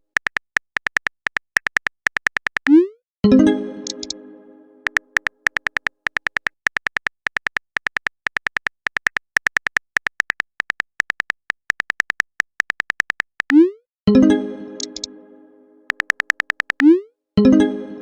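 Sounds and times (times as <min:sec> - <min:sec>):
phone keyboard typing clicks: 0:00.0 - 0:02.8, 0:03.8 - 0:04.2, 0:04.8 - 0:13.6, 0:14.8 - 0:15.1, 0:15.9 - 0:17.0.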